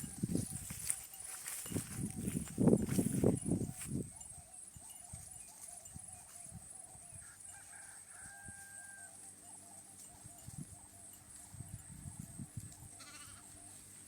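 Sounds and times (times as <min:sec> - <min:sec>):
faint drawn-out animal call: 0:13.0 - 0:13.8.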